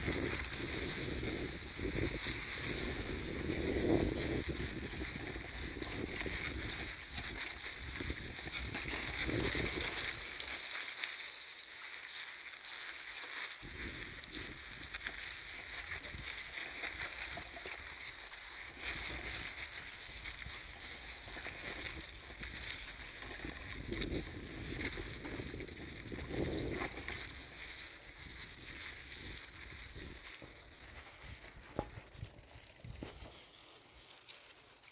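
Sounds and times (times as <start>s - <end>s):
wind rushing over microphone: 0.0s - 9.8s, 23.6s - 27.1s
bicycle tyres rolling: 0.0s - 34.9s.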